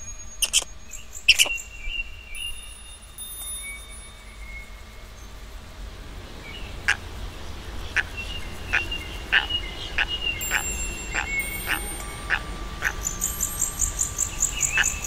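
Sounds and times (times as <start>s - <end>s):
thin steady high tone: 2.1s - 15.0s
bird calling in sharp notes: 8.0s - 15.0s.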